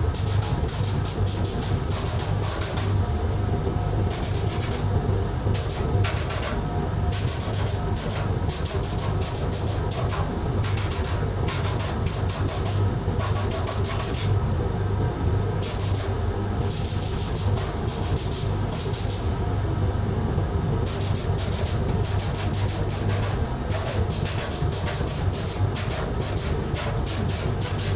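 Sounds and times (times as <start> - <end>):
low machinery hum: 0.0 - 27.9.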